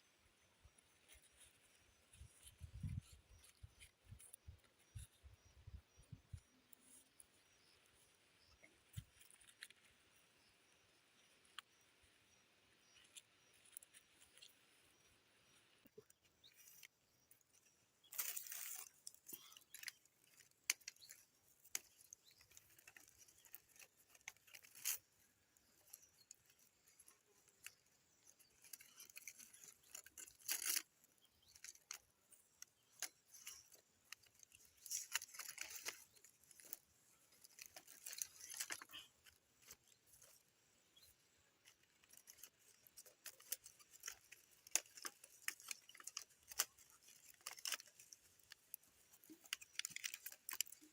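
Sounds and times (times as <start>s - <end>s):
materials rustling and crackling: 18.0s - 40.4s, 41.6s - 50.9s.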